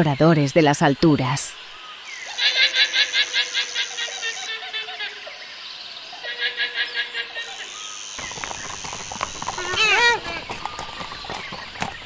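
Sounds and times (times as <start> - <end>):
guanaco calling trill: 2.1 - 5.4, 9.4 - 11.0.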